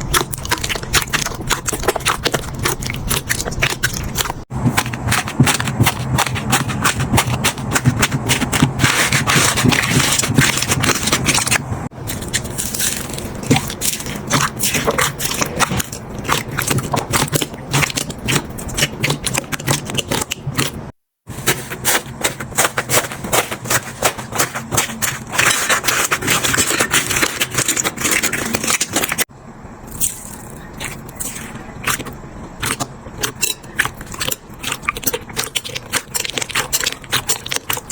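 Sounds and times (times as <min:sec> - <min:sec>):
slime crackling and popping: 0:00.0 - 0:20.8.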